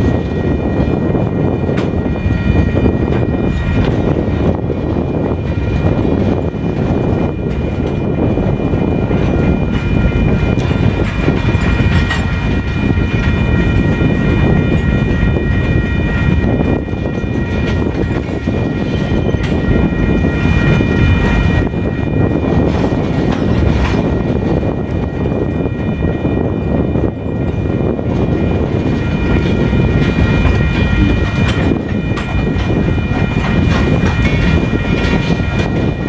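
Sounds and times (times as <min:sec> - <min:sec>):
freight cars rumbling on rails: 0:00.0 - 0:36.0
high-pitched ringing tones: 0:00.0 - 0:36.0
wheels clicking over rails: 0:09.2 - 0:14.0.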